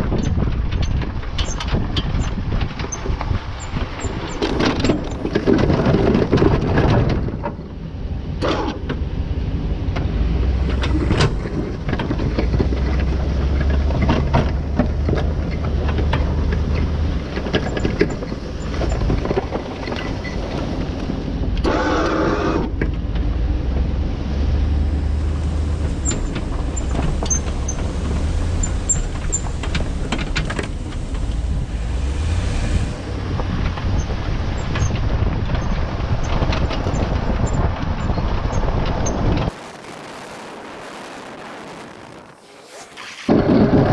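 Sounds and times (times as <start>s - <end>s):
vehicle engine rumbling: 0.0s - 43.9s
short harsh burst of noise: 39.5s - 43.6s.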